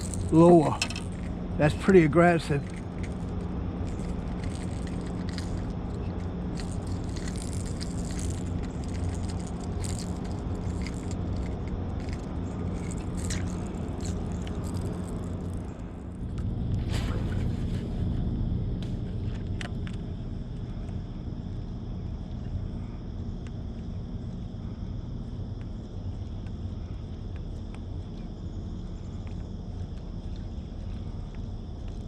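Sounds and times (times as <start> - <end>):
light clicks and rattles: 0.0 - 16.5.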